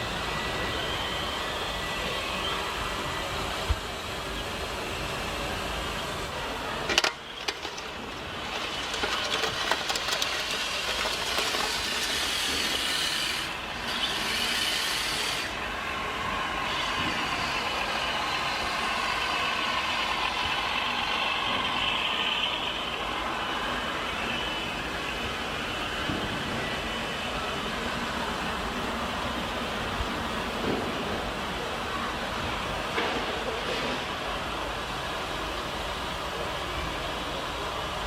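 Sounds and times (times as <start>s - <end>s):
model machinery running: 0.0s - 26.0s.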